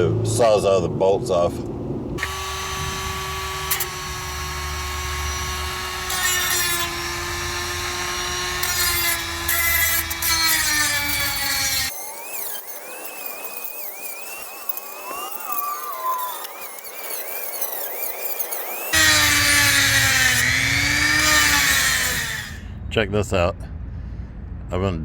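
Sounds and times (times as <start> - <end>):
electric power tool cutting bolts: 2.2 - 22.7
faint wavering high-pitched tone: 11.9 - 19.0.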